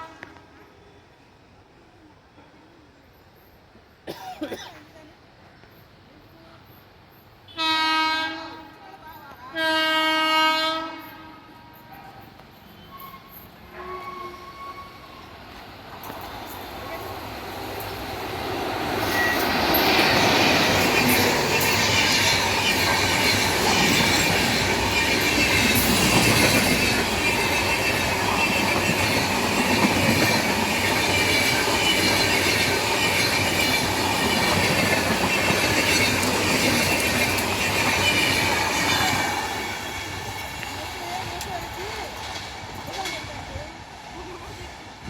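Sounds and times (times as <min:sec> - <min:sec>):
train wheels rushing on rails: 0:11.8 - 0:45.0
high wheel squeal: 0:19.0 - 0:40.2.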